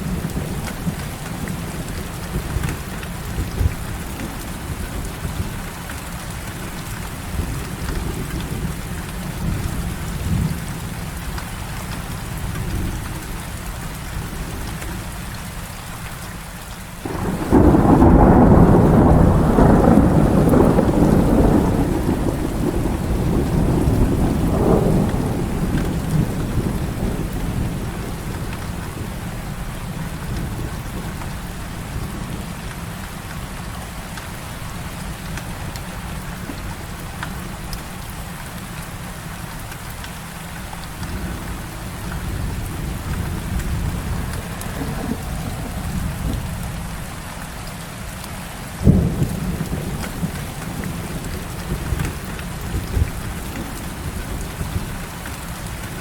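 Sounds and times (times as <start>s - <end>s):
heavy rain: 0.0s - 56.0s
loud thunderclap: 17.0s - 29.2s, 41.0s - 47.1s, 48.8s - 55.0s
low thunder rumbling: 17.0s - 33.0s, 40.7s - 47.6s, 48.8s - 56.0s.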